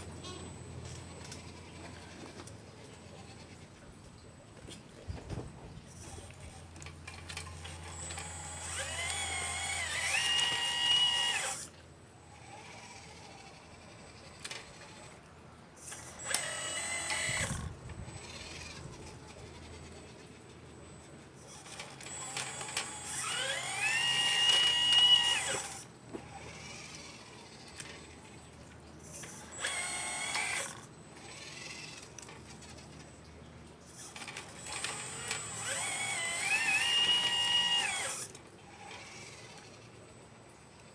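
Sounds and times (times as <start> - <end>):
small electric motors whining: 0.0 - 40.9.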